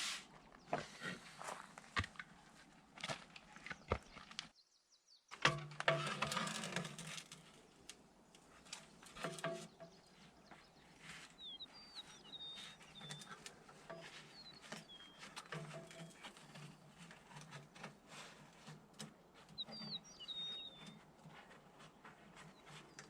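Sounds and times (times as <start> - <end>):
knocks and clatter from handwork: 5.3 - 7.6, 8.5 - 11.4, 12.0 - 23.0
small bird chirping: 8.4 - 17.1, 19.4 - 23.0.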